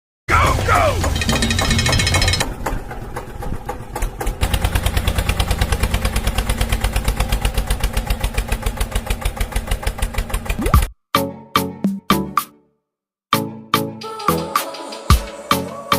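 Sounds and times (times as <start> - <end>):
tractor engine chugging: 0.3 - 10.6.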